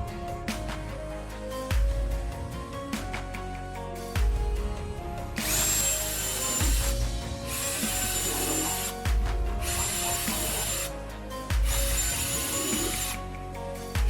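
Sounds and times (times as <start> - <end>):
background music with low beat: 0.0 - 14.0
power tool rasping wood: 5.4 - 10.9, 11.6 - 13.2.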